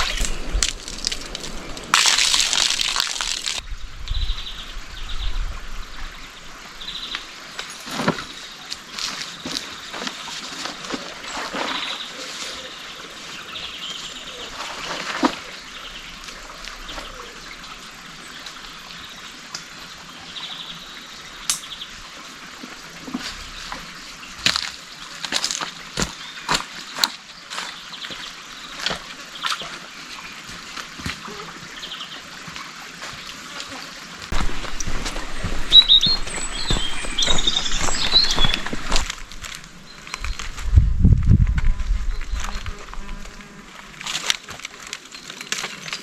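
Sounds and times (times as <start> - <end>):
small stream trickling: 0.0 - 40.6
bird chirps: 35.1 - 39.0.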